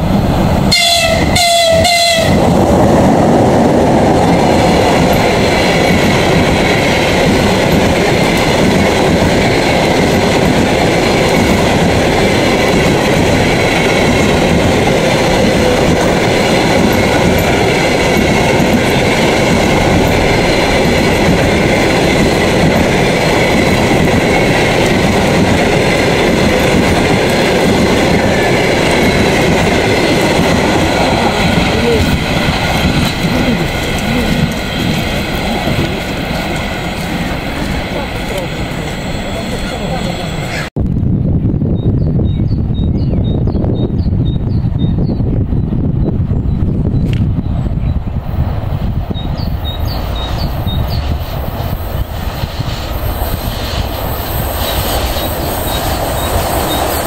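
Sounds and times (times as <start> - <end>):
train passing clickety-clack: 0.0 - 40.8, 42.2 - 57.0
train horn blasts: 0.7 - 2.4.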